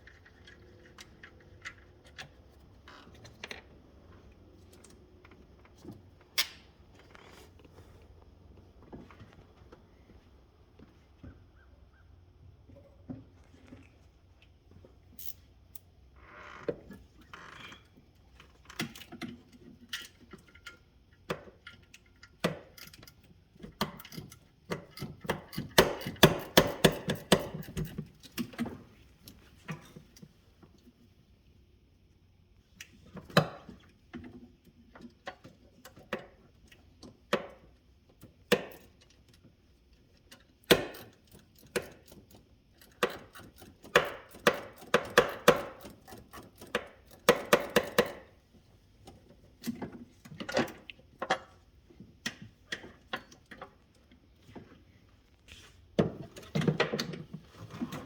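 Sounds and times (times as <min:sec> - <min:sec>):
tools and parts clicking and knocking: 0:00.0 - 0:03.7, 0:17.6 - 0:30.7, 0:32.8 - 0:54.7, 0:56.0 - 0:58.0.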